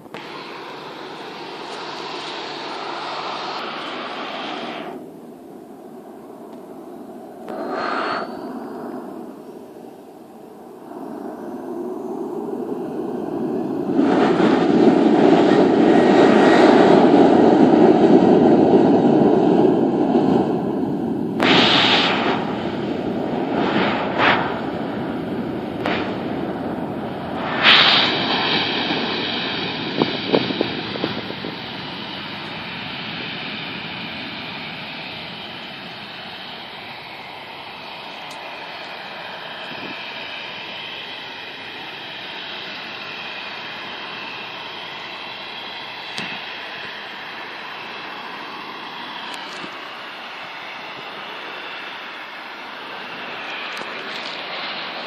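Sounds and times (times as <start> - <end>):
high-pitched turbine whine: 0.0 - 55.0
jet engine rumble: 0.0 - 55.0
short rushing bursts: 21.4 - 29.2.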